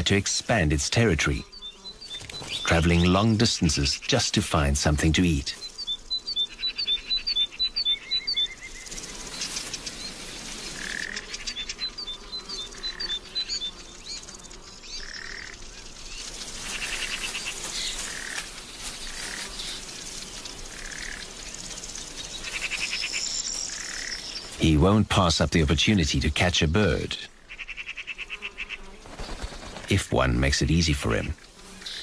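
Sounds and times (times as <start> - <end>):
birds calling: 0.0 - 32.0
insects trilling: 0.0 - 32.0.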